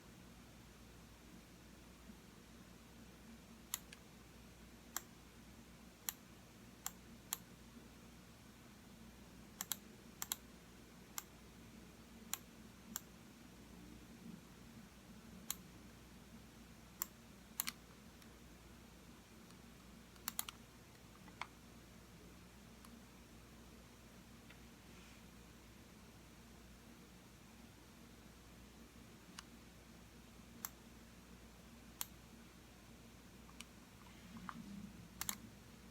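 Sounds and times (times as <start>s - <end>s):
faint low room hum: 0.0s - 35.9s
computer mouse clicks: 3.7s - 4.0s, 4.9s - 5.1s, 6.0s - 6.2s, 6.8s - 7.5s, 9.6s - 10.5s, 12.3s - 13.1s, 15.4s - 15.6s, 17.0s - 18.3s, 19.4s - 21.5s, 30.6s - 30.8s, 32.0s - 32.2s, 33.4s - 35.5s.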